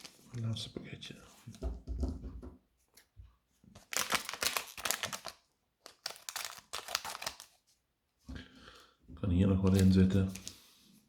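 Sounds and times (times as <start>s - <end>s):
foil wrapper crinkling and tearing: 3.8s - 7.7s.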